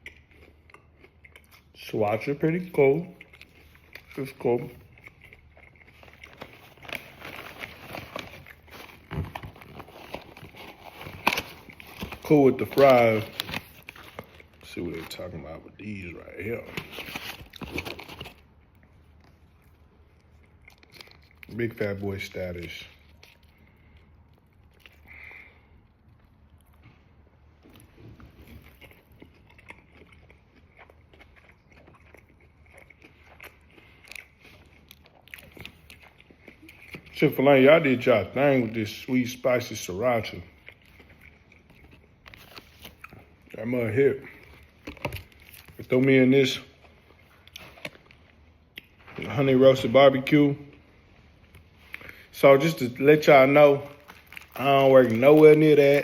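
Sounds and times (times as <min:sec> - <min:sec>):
chewing fries: 0:00.0 - 0:56.0
paper packaging rustling: 0:06.0 - 0:15.4, 0:16.4 - 0:18.5, 0:53.3 - 0:56.0.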